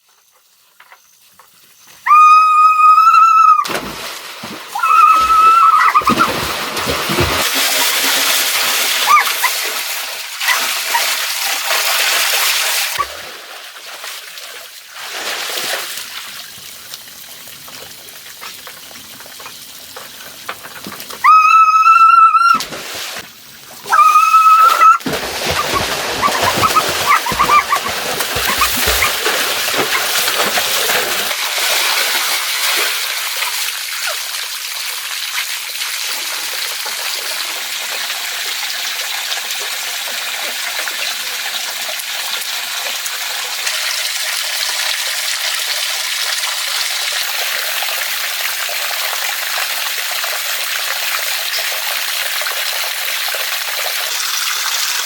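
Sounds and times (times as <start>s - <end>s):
flowing water rushing: 3.7s - 13.2s, 18.8s - 33.8s.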